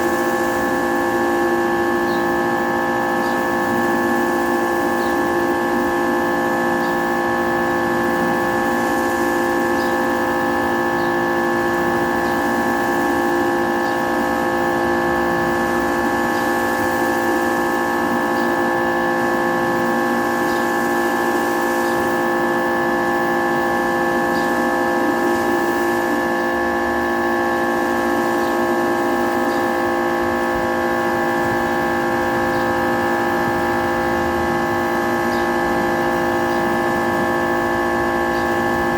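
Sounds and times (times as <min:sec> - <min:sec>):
pressure washer running: 0:00.0 - 0:38.9.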